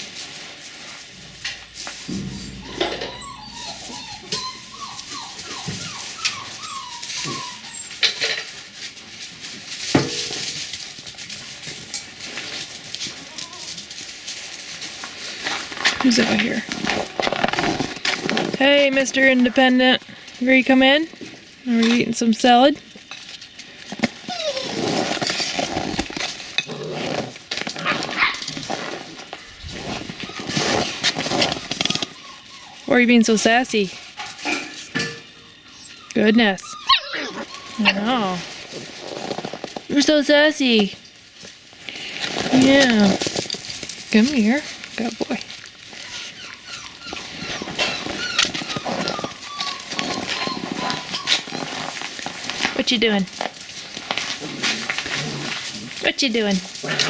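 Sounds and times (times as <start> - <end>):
puppy whining: 2.1 - 8.5, 24.2 - 33.4, 35.2 - 38.6, 45.8 - 52.7.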